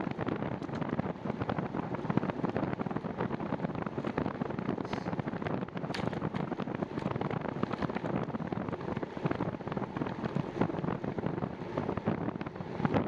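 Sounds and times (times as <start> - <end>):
wind buffeting microphone: 0.0 - 13.0
small knocks and crackles: 5.8 - 8.3.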